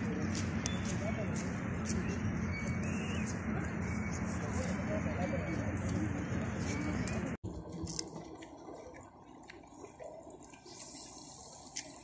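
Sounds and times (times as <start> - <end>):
outdoor background noise: 0.0 - 12.0
bird chirping: 0.6 - 4.6.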